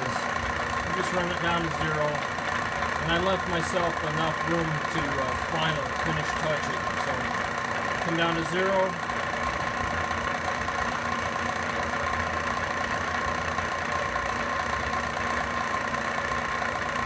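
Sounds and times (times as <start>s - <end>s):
milling machine cutting steel: 0.0s - 17.0s.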